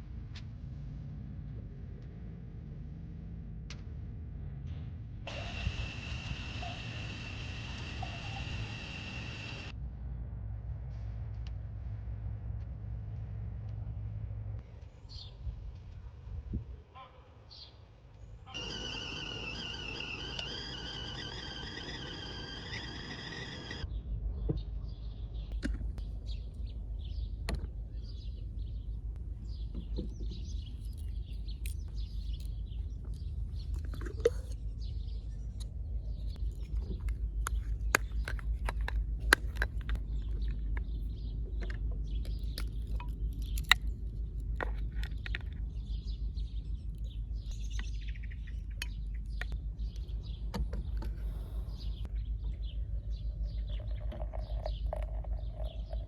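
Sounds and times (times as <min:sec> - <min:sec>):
small birds chirping and twittering: 0:17.5 - 0:56.0.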